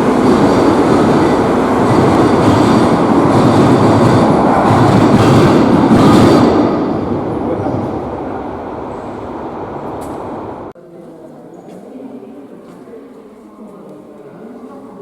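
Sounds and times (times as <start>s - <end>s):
train wheels rumbling on rail: 0.0s - 10.7s.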